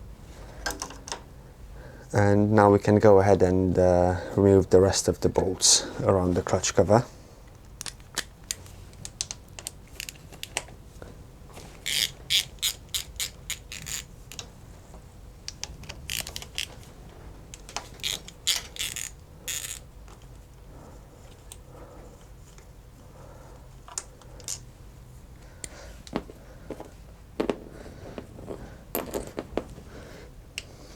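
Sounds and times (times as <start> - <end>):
socket ratchet clicking: 11.8 - 14.5, 15.5 - 16.8, 17.6 - 20.3.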